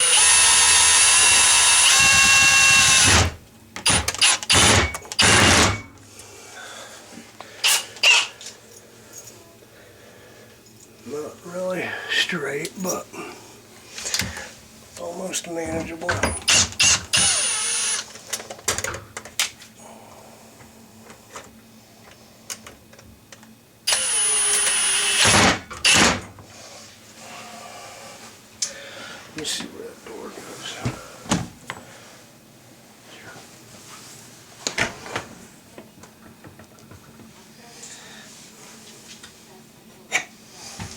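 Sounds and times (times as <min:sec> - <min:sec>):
small motor tool whining: 0:00.0 - 0:05.8, 0:16.4 - 0:18.1, 0:23.9 - 0:26.2
power drill running: 0:00.0 - 0:05.9, 0:16.4 - 0:18.1, 0:23.9 - 0:26.2.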